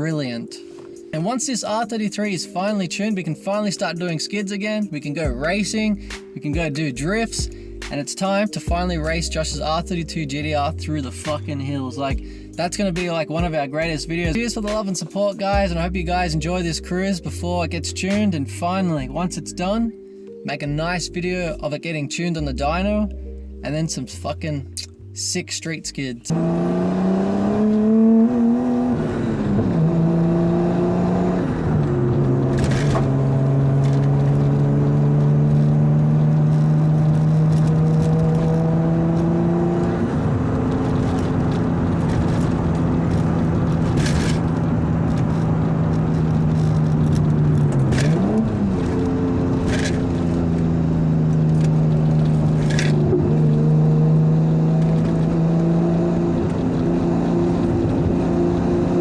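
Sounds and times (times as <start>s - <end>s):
car engine cruising: 3.5s - 8.0s, 8.6s - 20.0s, 22.4s - 59.0s
exhaust cracks: 26.3s - 59.0s.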